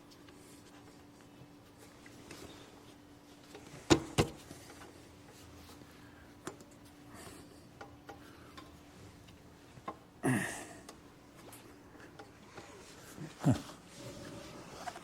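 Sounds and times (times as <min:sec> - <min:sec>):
faint steady hum: 0:00.0 - 0:15.0
tools clicking and tapping: 0:07.8 - 0:08.8.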